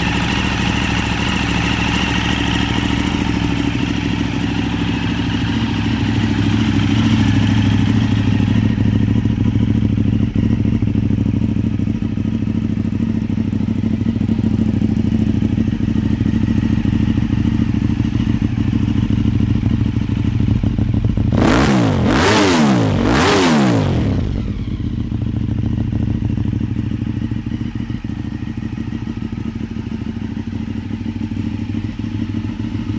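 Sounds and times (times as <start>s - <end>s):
motorcycle engine idling: 0.0s - 32.9s
engine revving: 21.2s - 24.8s.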